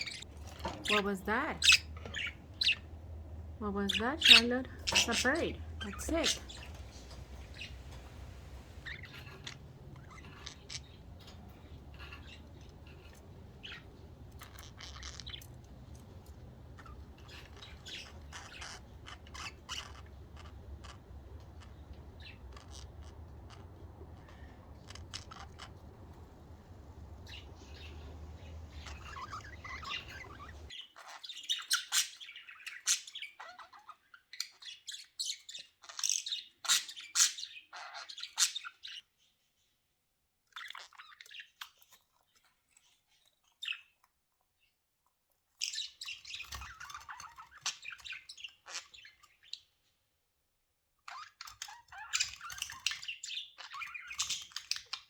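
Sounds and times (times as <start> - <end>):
budgies chirping: 0.0 - 39.0, 45.6 - 49.7, 51.1 - 55.0
steady low hum: 0.1 - 30.7.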